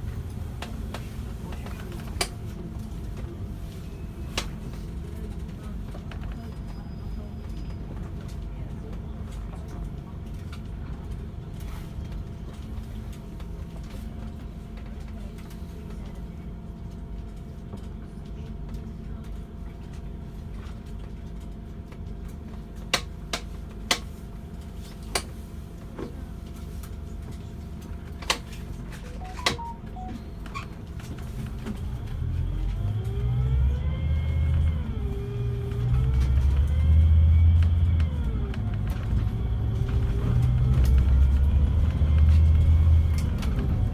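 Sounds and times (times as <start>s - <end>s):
coach engine idling and revving: 31.5s - 43.9s.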